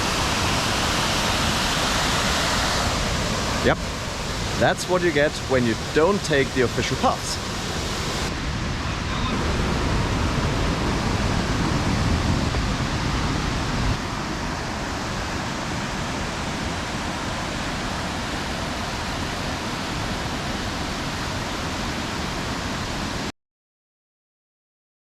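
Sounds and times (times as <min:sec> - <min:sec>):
waterfall rushing: 0:00.0 - 0:23.3.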